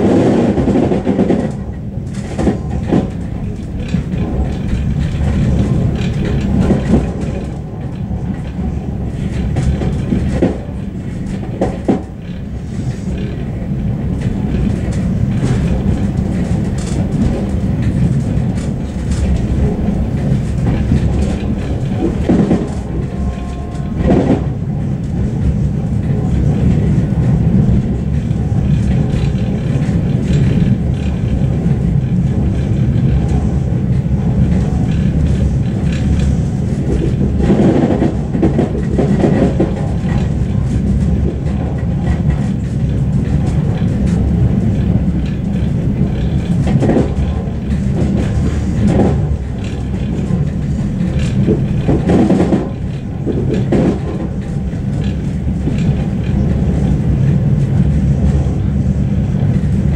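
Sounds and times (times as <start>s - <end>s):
train low rumble: 0.0s - 59.9s.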